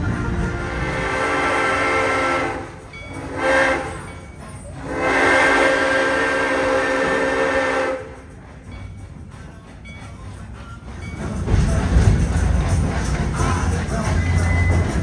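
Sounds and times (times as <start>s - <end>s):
train rumble: 0.0s - 15.0s
train whistle blasts: 0.2s - 8.4s.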